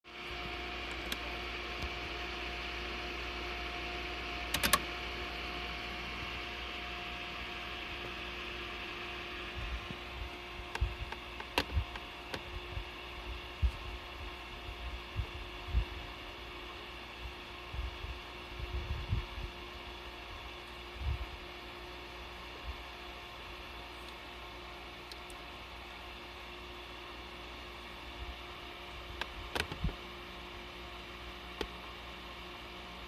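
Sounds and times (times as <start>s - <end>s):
monitor electrical hum: 0.0s - 33.0s
clicks: 4.5s - 4.9s.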